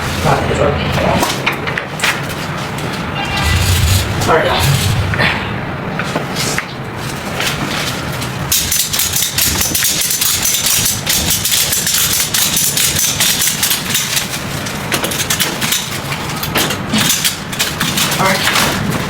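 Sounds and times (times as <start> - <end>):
low engine hum: 3.2 - 6.0.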